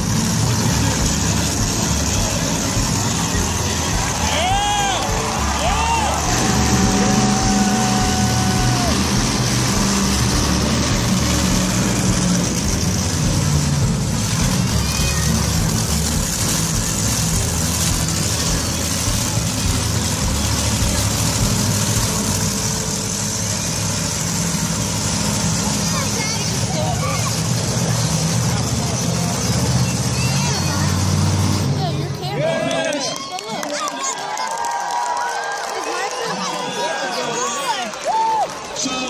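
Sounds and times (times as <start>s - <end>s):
monster truck engine revving: 0.0s - 39.0s.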